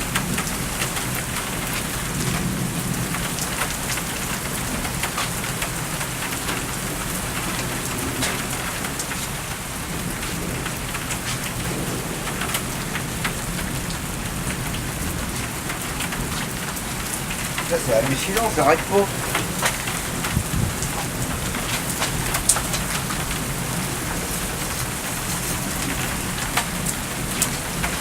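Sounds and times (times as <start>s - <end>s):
heavy rain falling: 0.0s - 28.0s
thunder rumbling: 6.4s - 28.0s.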